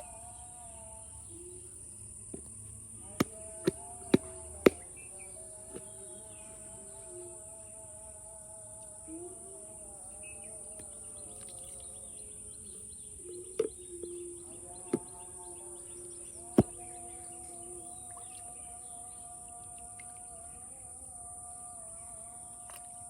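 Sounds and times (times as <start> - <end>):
birds chirping: 0.0 - 7.8, 9.1 - 19.6
high insect drone: 0.0 - 23.0.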